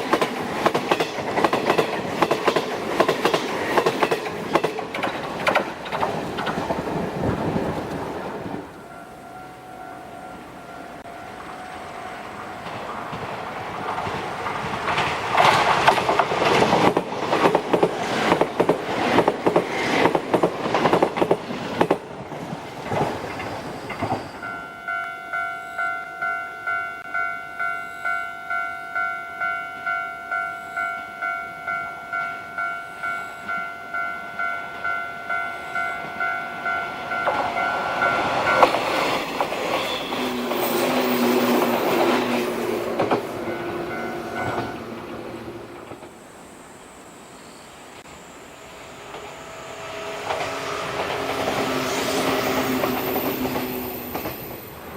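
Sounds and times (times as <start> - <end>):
train wheel clatter: 0.0 - 8.9, 12.6 - 24.6, 36.8 - 46.2, 49.0 - 54.9.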